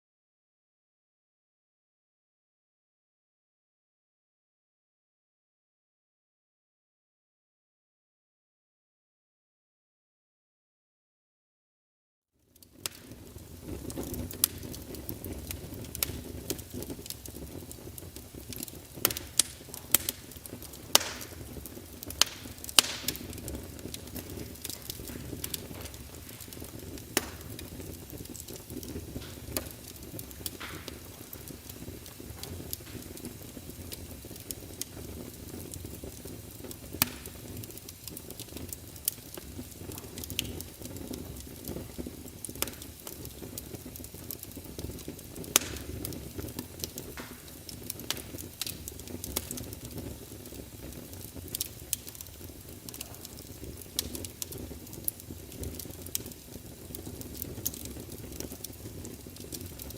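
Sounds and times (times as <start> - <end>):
wood fire crackling: 12.4 - 59.9.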